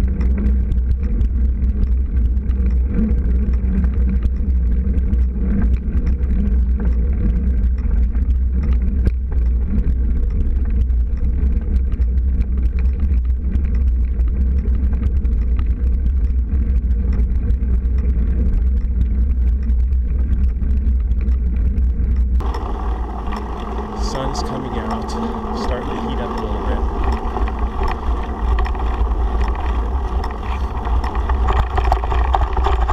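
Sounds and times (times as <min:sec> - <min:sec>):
bicycle tyres rolling on gravel: 0:00.0 - 0:32.9
faint ticks: 0:00.0 - 0:32.9
wind buffeting microphone: 0:22.4 - 0:32.9.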